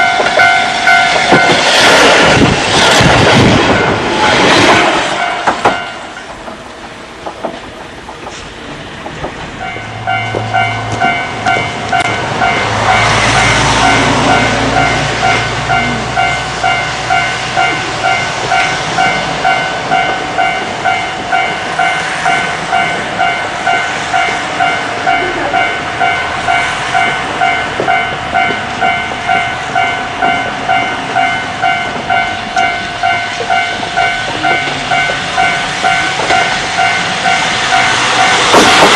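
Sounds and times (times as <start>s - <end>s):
level crossing alarm ringing: 0.0s - 1.6s, 9.6s - 38.6s
electric train rumbling on rails: 0.0s - 38.9s.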